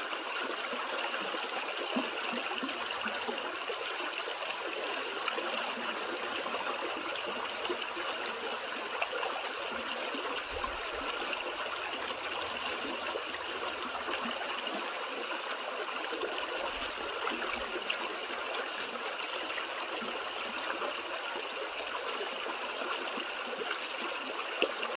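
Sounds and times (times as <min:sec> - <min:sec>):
creek trickling over rocks: 0:00.0 - 0:25.0.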